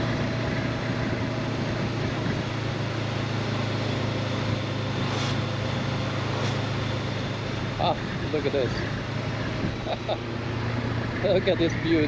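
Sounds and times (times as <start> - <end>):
motorcycle engine cruising: 0.0 - 12.0
wind rush: 9.3 - 10.1.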